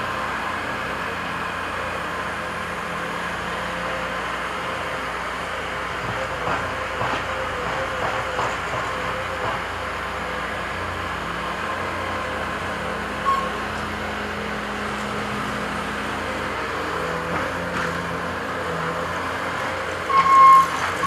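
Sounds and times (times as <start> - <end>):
construction machinery engines: 0.0 - 21.0
sharp high squeak: 13.2 - 13.6, 20.1 - 21.0.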